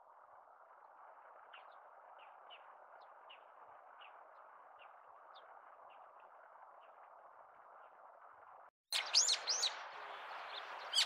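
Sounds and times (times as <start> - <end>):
steady low hiss: 0.0 - 8.7.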